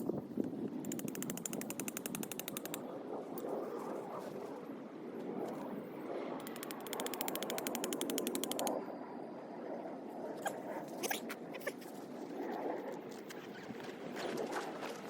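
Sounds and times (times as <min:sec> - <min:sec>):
ratchet clicking fast: 0:00.8 - 0:02.8, 0:06.4 - 0:08.7
sharp clicks and knocks: 0:00.8 - 0:02.8, 0:06.4 - 0:08.7.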